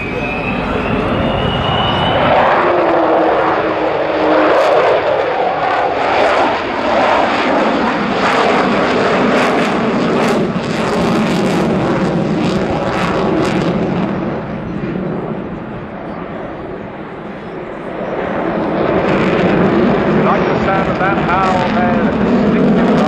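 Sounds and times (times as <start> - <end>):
falling tone: 0.0 - 3.7
jet engines roaring: 0.0 - 23.0.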